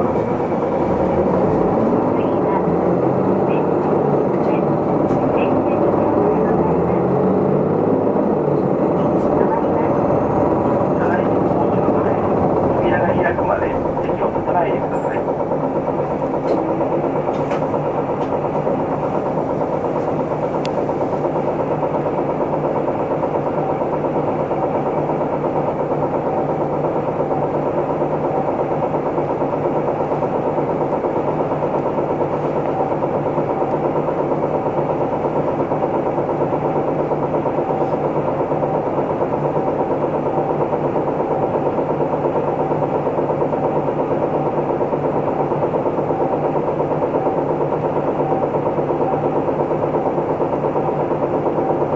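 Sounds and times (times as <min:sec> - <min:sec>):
bus diesel engine idling: 0:00.0 - 0:51.9.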